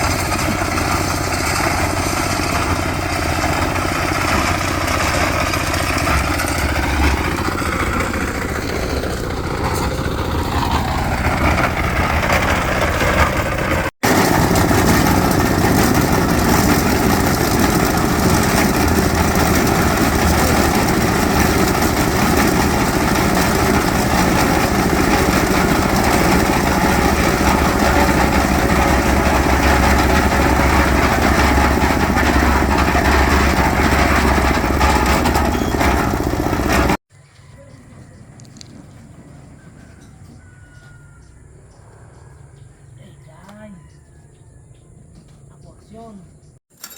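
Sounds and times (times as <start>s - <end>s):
small engine running: 0.0s - 37.0s.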